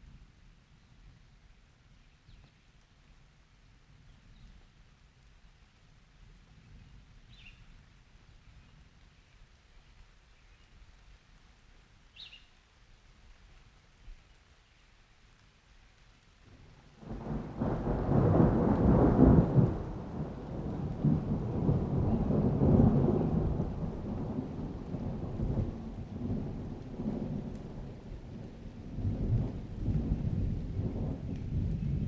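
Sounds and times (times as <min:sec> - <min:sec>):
rain: 0:00.0 - 0:32.0
thunder rumbling: 0:17.0 - 0:32.0.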